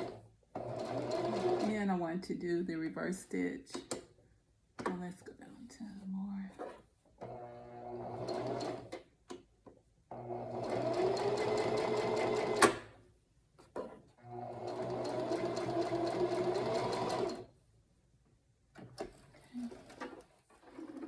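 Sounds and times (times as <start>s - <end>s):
sewing machine stitching: 0.0s - 1.8s, 7.2s - 9.0s, 10.1s - 12.9s, 14.2s - 17.5s, 18.8s - 21.0s.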